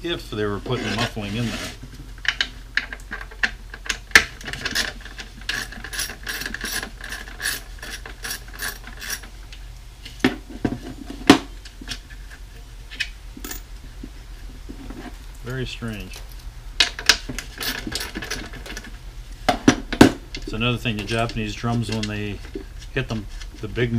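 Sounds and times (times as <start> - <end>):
ratcheting hand tool clicking: 4.6 - 9.3.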